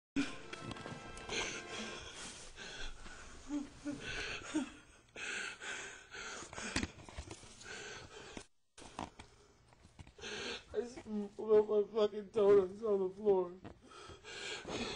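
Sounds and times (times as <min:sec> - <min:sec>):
man sobbing: 0:02.7 - 0:05.1.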